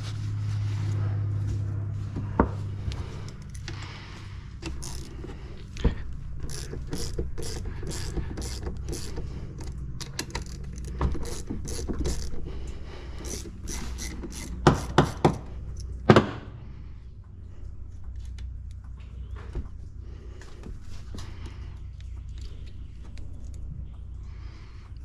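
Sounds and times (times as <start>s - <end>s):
small mechanical clicks and rattles: 4.6s - 5.8s, 6.4s - 12.5s, 13.2s - 15.0s.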